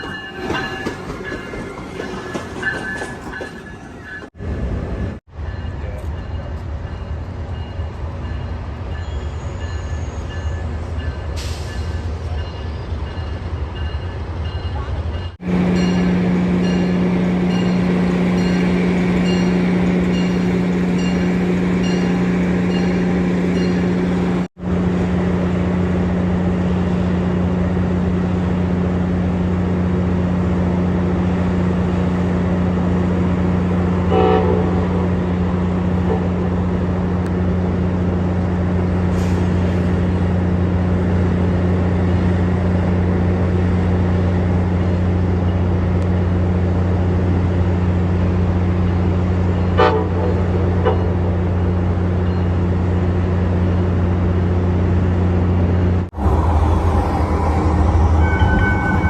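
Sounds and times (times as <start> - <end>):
train engine drone: 0.0 - 59.0
train horn toot: 34.0 - 35.1, 49.8 - 51.2, 56.2 - 59.0.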